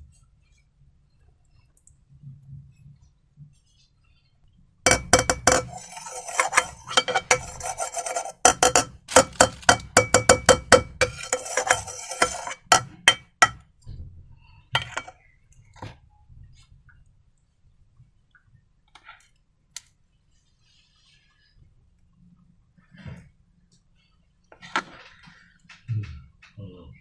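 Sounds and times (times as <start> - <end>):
faint container ring: 4.9 - 13.6
wet rubbing of slime: 5.4 - 9.8.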